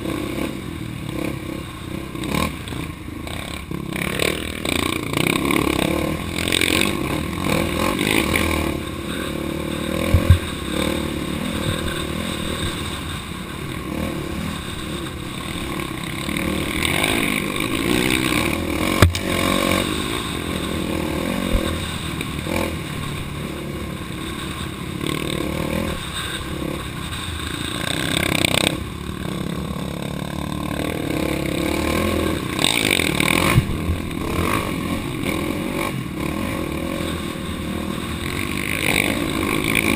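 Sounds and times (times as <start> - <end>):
off-road vehicle engine revving: 0.0 - 39.9
sharp knocks: 10.1 - 10.5.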